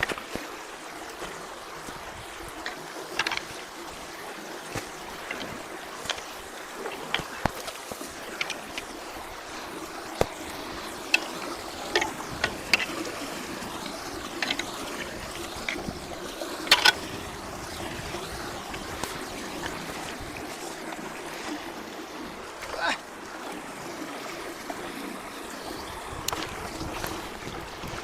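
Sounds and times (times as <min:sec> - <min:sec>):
floodwater rushing through culvert: 0:00.0 - 0:28.0
sharp knocks and clicks: 0:02.6 - 0:03.6.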